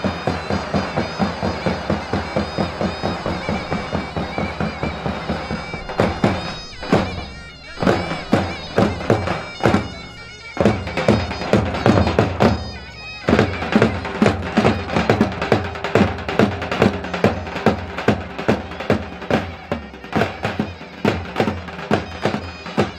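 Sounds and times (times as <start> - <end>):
heavy drum beat: 0.0 - 22.9
reedy lead melody: 0.0 - 22.9.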